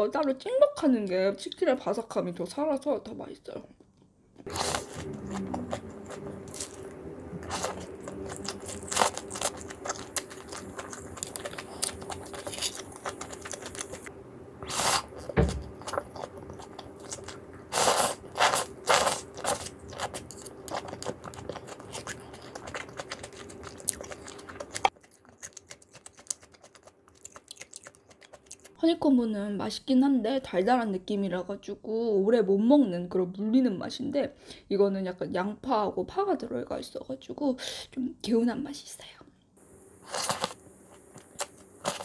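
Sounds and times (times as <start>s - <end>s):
crunching and chewing fried chicken: 3.8s - 28.8s, 39.9s - 42.0s
low hum: 4.5s - 24.8s.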